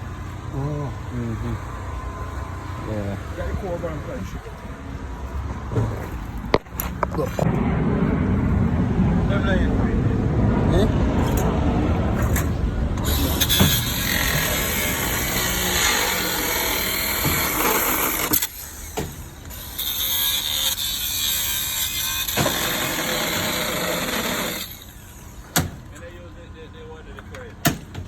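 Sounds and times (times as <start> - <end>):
engine low rumble: 0.0 - 19.8.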